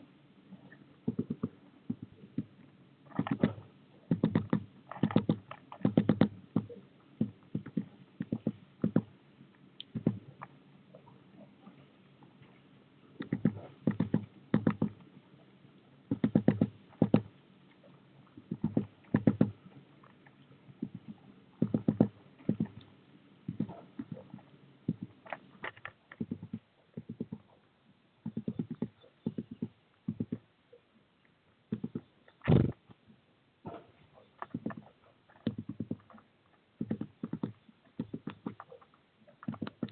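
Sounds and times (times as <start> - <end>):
bird tapping and scratching: 3.1 - 9.1, 9.8 - 10.6, 13.2 - 15.0, 16.1 - 17.4, 18.2 - 27.6, 28.2 - 30.5, 31.7 - 33.0, 33.7 - 39.9.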